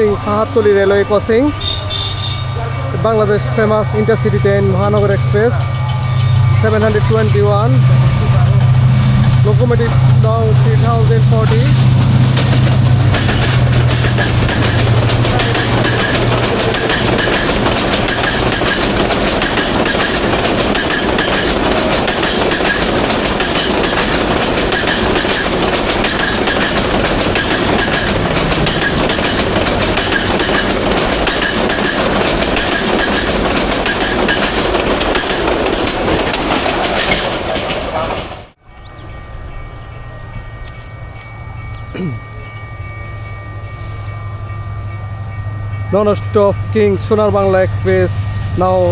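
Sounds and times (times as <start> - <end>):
train wheels rumbling on rail: 0.0 - 48.9
clickety-clack over rail joints: 9.4 - 38.6.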